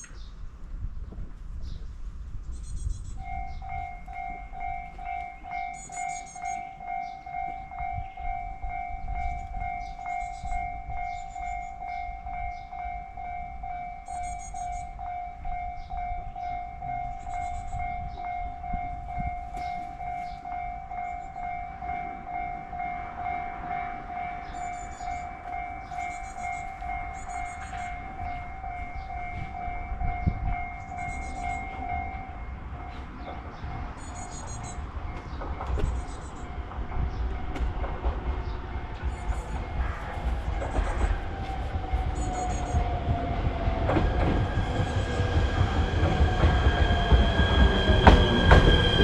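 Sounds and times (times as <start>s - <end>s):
level crossing alarm ringing: 3.2s - 49.0s
small birds chirping: 32.9s - 37.4s.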